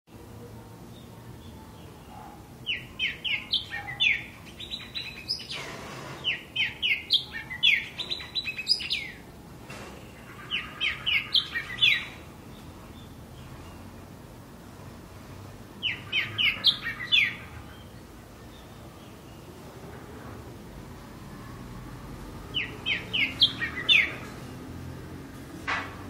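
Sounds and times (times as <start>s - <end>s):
bird chirping: 0.9s - 9.3s, 10.0s - 14.2s, 15.8s - 19.6s, 22.4s - 24.7s.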